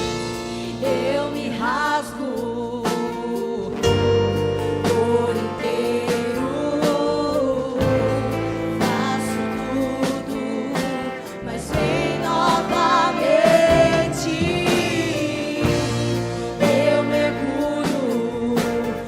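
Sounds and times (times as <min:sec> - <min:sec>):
steady drum beat: 0:00.0 - 0:02.3, 0:02.9 - 0:19.0
worship song by band: 0:00.0 - 0:19.0
person singing: 0:00.6 - 0:19.0.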